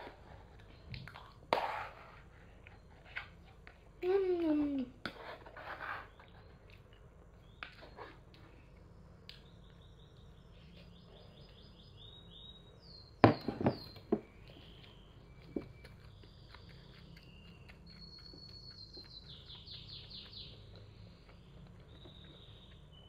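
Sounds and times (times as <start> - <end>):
small bird chirping and trilling: 7.4 - 23.0.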